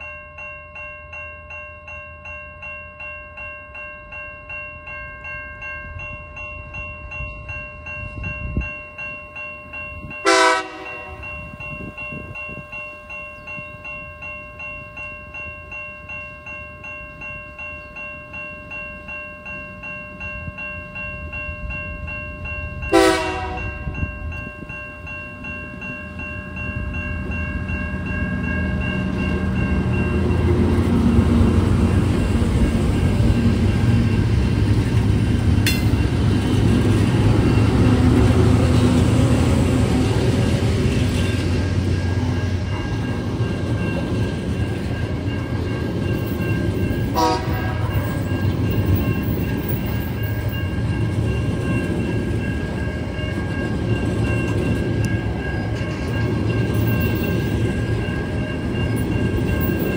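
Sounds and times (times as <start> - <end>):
level-crossing bells ringing: 0.0 - 59.9
diesel locomotive engines rumbling: 4.0 - 59.9
train horn blast: 10.2 - 11.3, 22.9 - 23.9, 47.1 - 48.1.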